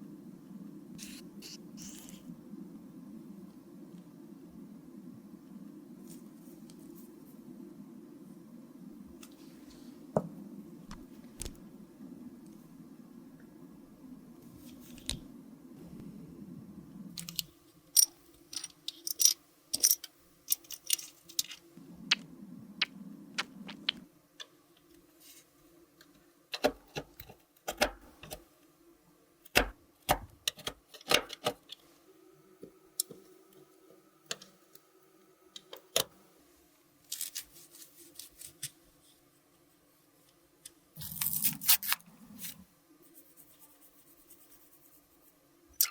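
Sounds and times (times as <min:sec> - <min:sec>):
low hum: 0:00.0 - 0:26.2.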